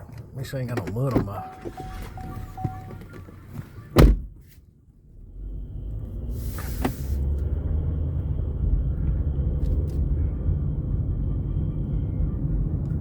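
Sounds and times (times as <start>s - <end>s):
car engine rumble: 0.0s - 13.0s.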